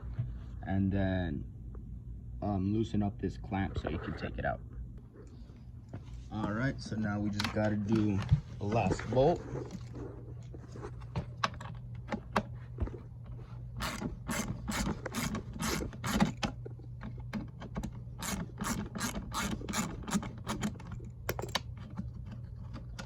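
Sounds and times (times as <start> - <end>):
hand ratchet clicking: 13.8 - 16.5, 18.2 - 21.6.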